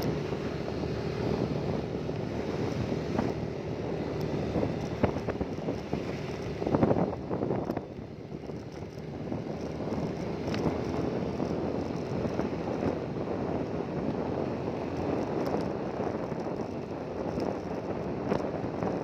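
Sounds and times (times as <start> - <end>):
engine running: 0.0 - 19.0
wind buffeting microphone: 0.0 - 19.0.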